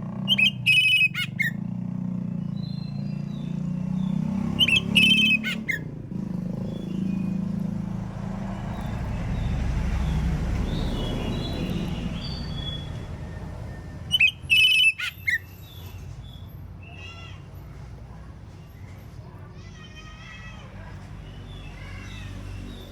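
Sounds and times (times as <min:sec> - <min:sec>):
low vehicle rumble: 0:00.0 - 0:22.9
bird whistling sharp notes: 0:00.3 - 0:01.6, 0:04.6 - 0:05.8, 0:13.6 - 0:15.8.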